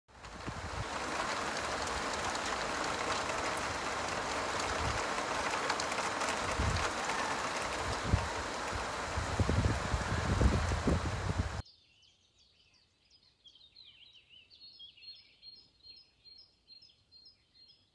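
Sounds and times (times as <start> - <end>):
drops ticking: 0.1 - 9.7
rain falling: 0.1 - 11.6.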